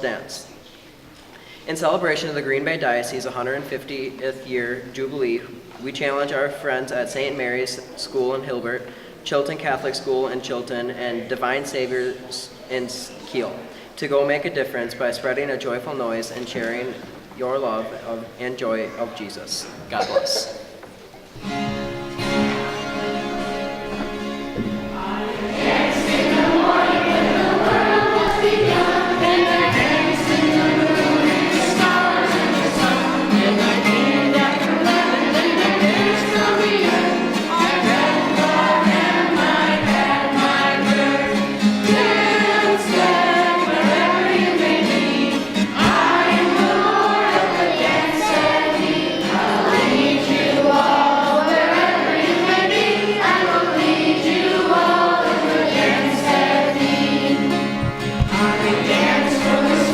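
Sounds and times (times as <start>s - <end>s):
instrumental accompaniment: 20.9s - 59.9s
choir singing: 22.5s - 59.9s.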